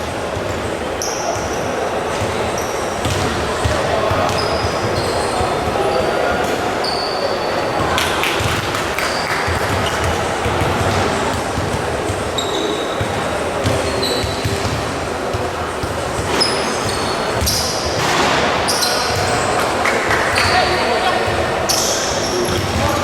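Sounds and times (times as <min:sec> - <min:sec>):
crowd hum: 0:00.0 - 0:23.0
sneakers squeaking on court: 0:00.2 - 0:23.0
basketball bouncing thuds: 0:03.0 - 0:05.7, 0:13.0 - 0:19.4.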